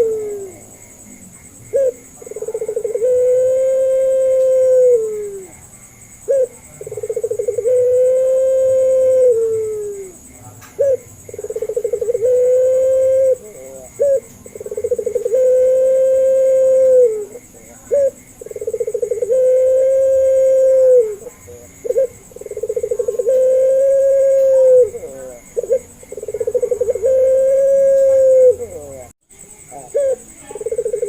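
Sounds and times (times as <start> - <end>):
dove cooing: 0.0 - 0.8, 1.4 - 31.0.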